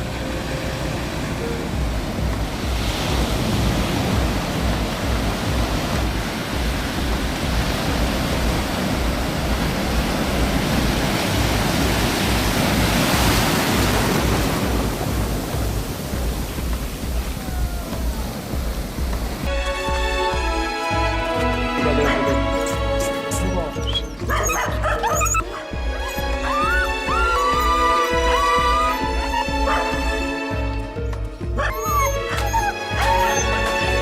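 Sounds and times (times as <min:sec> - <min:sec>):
wind buffeting microphone: 0:00.0 - 0:19.5.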